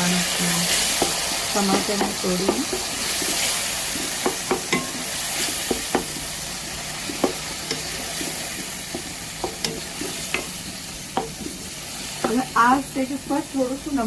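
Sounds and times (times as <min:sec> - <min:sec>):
tomatoes sizzling in hot oil: 0:00.0 - 0:14.0
spoon tapping and scraping pan: 0:00.9 - 0:06.4, 0:07.0 - 0:12.6.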